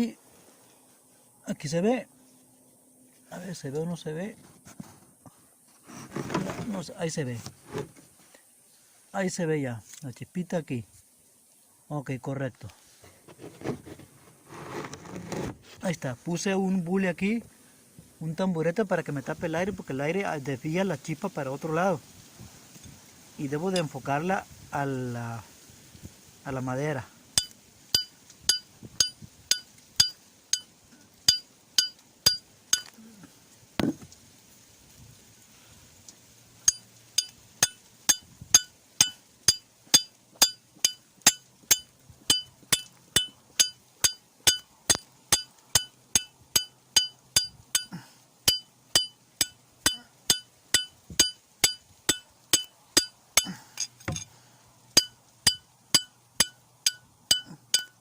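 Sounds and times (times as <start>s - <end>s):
steel file striking stone: 27.4s - 30.7s, 31.3s - 33.0s, 36.7s - 47.9s, 48.5s - 54.3s, 55.0s - 58.0s.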